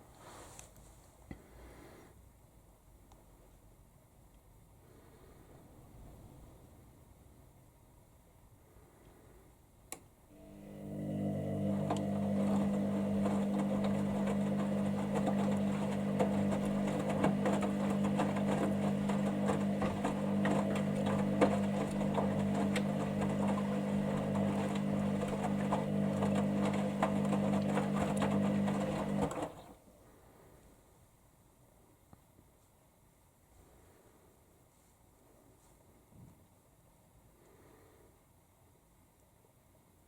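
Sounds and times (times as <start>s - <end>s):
washing machine motor hum: 10.3s - 29.8s.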